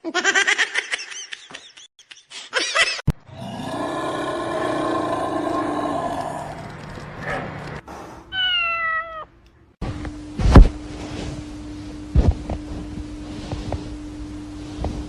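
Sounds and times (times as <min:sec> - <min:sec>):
cat meowing: 0:08.3 - 0:09.3.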